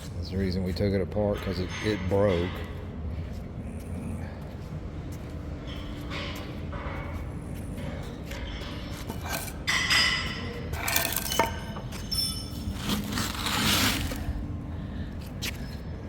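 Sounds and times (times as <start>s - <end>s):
faint steady hum: 2.5s - 16.0s
metal parts clinking and scraping: 8.3s - 14.2s.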